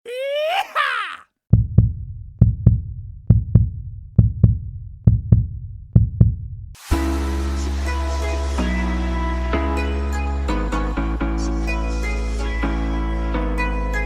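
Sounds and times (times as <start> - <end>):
heartbeat thumps: 1.5 - 6.7.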